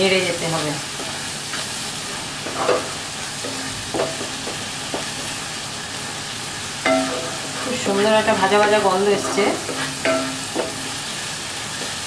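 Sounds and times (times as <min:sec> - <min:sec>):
spice paste sizzling in oil: 0:00.0 - 0:12.0
wooden spatula scraping pan: 0:07.2 - 0:10.8.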